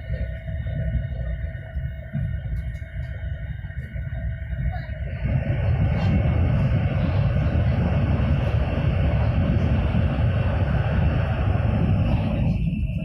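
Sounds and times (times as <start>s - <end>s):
train cabin rumble and rushing: 0.0s - 13.0s.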